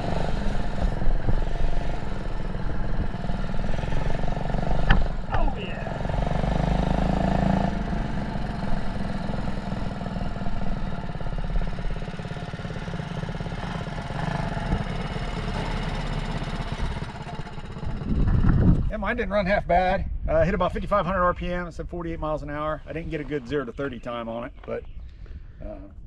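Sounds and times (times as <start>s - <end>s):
mini bike engine running: 0.0s - 18.9s.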